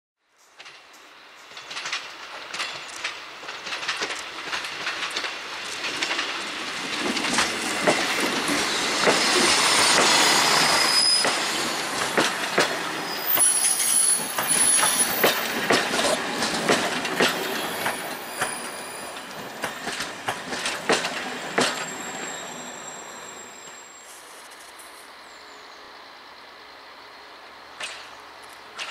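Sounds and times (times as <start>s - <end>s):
train wheels clacking over joints: 0.4s - 22.4s, 27.8s - 28.9s
wheel squeal: 8.7s - 11.5s, 13.0s - 15.6s, 17.4s - 20.0s, 21.4s - 24.5s.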